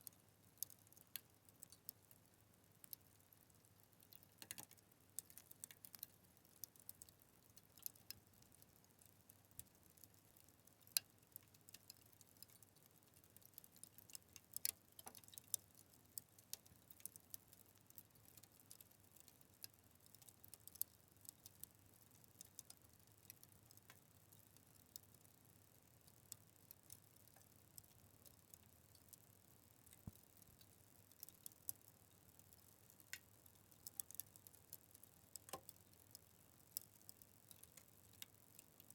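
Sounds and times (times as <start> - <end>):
fire crackling and popping: 9.4 - 38.9.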